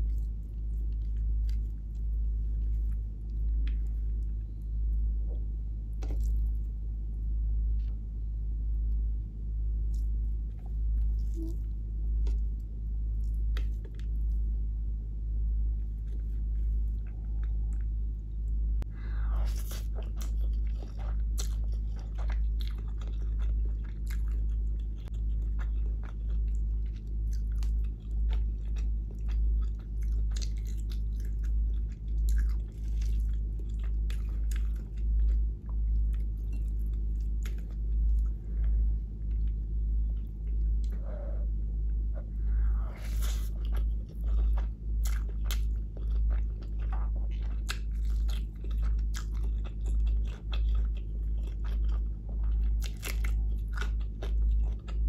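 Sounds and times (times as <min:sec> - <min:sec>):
close chewing crunches: 0:19.5 - 0:38.3, 0:43.0 - 0:55.0.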